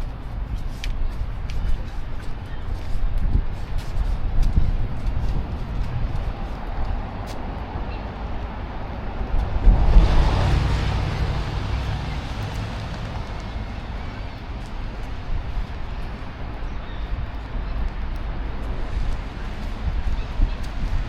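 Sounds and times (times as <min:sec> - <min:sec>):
road traffic: 0:00.0 - 0:21.0
steady low rumble: 0:00.0 - 0:21.0
vehicle passing: 0:04.9 - 0:16.5.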